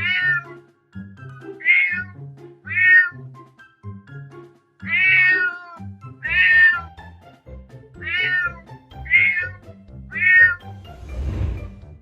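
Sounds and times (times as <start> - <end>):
cat meowing: 0.0 - 0.6, 1.6 - 3.2, 4.8 - 6.9, 8.0 - 10.7
music: 0.0 - 12.0.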